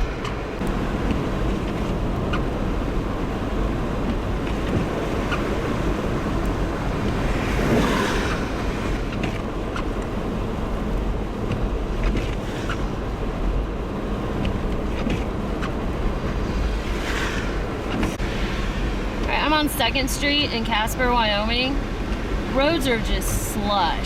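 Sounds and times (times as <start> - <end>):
tyre and road noise: 0.0 - 24.0
hiss of slush: 16.2 - 19.0.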